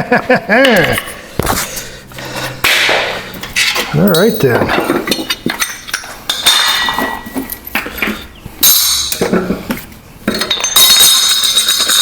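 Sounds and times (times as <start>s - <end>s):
metal clanks with ringing: 3.6s - 7.7s, 8.6s - 9.6s, 10.2s - 12.0s.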